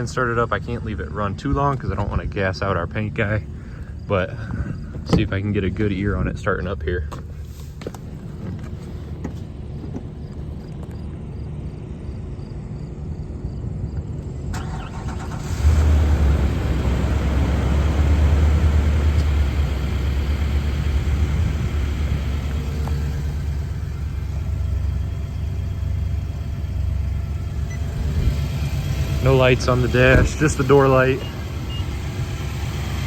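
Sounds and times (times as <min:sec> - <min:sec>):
engine idling: 0:00.0 - 0:33.0
starter cranking: 0:14.4 - 0:15.9.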